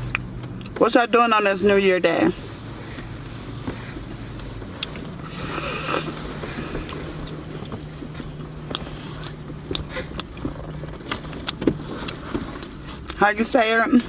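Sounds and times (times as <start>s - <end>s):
low car hum: 0.0s - 14.0s
person chewing: 4.4s - 13.2s.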